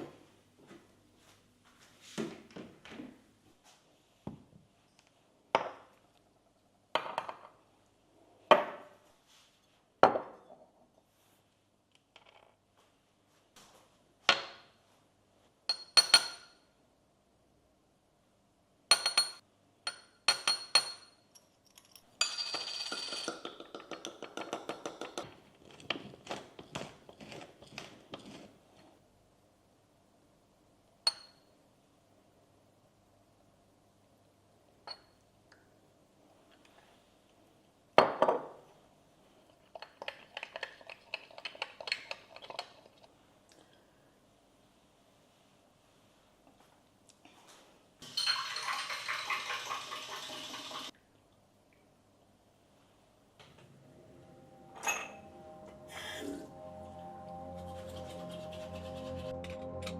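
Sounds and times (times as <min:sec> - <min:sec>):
spoon clinking against glass: 0:15.7 - 0:16.6, 0:18.9 - 0:25.2, 0:31.1 - 0:31.4, 0:48.1 - 0:49.3, 0:54.8 - 0:55.3
spoon stirring in glass: 0:22.6 - 0:28.5, 0:39.7 - 0:43.1, 0:48.1 - 0:49.8.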